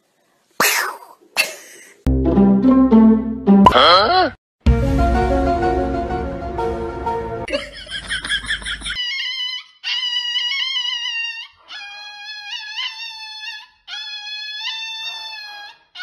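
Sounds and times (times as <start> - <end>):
dog wailing high-pitched: 9.0 - 16.0.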